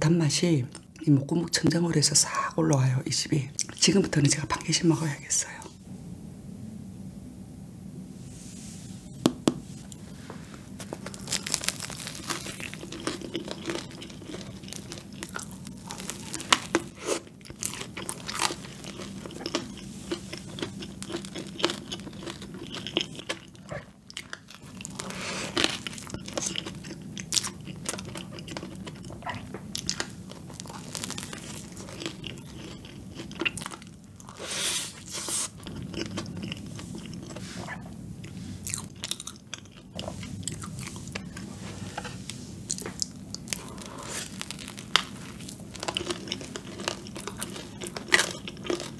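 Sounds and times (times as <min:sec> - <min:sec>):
faint low hum: 0:00.0 - 0:48.9
chewing and crunching donuts: 0:09.9 - 0:41.5, 0:42.6 - 0:48.9.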